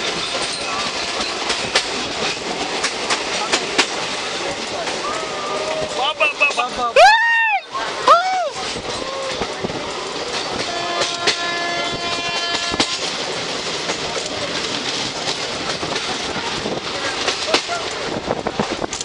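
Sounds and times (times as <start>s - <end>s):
train coaches rumbling and rattling: 0.0s - 19.0s
wheels clacking: 0.0s - 19.0s
train horn: 10.6s - 13.1s.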